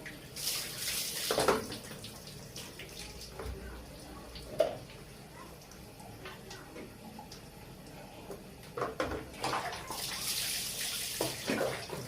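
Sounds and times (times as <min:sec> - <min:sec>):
water splashing in a basin: 0:00.0 - 0:03.6, 0:09.2 - 0:12.0
running water: 0:00.0 - 0:12.0.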